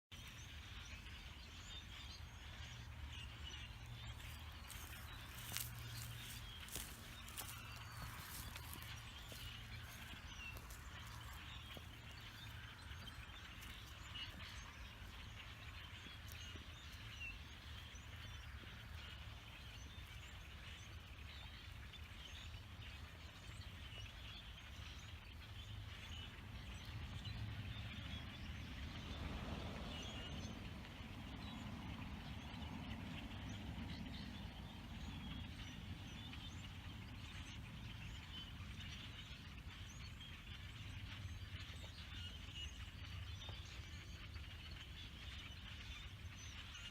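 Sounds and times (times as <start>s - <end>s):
flock of birds calling: 0.2s - 27.1s, 29.8s - 46.9s
steady low rumble: 3.0s - 19.5s.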